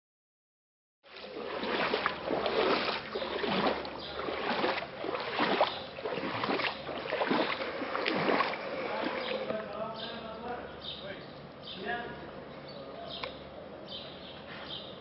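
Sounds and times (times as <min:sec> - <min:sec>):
water splashing and sloshing: 0:01.0 - 0:10.0.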